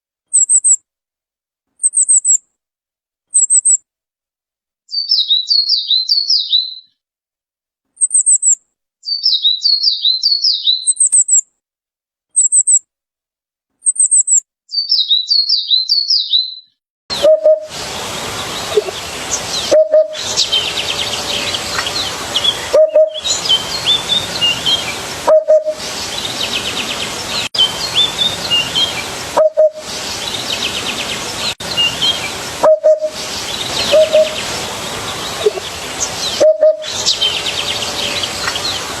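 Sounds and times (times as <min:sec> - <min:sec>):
songbirds chirping and singing: 0:04.9 - 0:06.8, 0:09.1 - 0:10.9, 0:14.8 - 0:39.0
steady hiss: 0:17.1 - 0:39.0.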